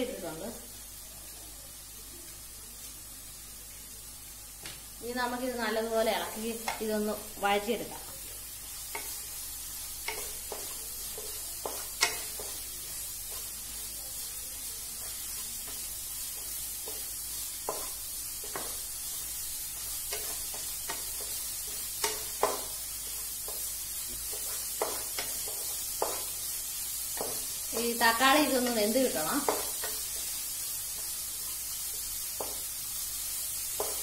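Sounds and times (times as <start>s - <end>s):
onions sizzling in oil: 0.0s - 34.0s
spatula tapping on pan: 6.6s - 6.9s, 8.9s - 9.2s, 10.0s - 12.7s, 15.6s - 18.8s, 19.8s - 22.8s, 23.4s - 26.4s, 27.1s - 28.0s, 29.4s - 30.3s, 32.3s - 32.7s, 33.7s - 34.0s
wooden spatula scraping: 14.9s - 30.3s.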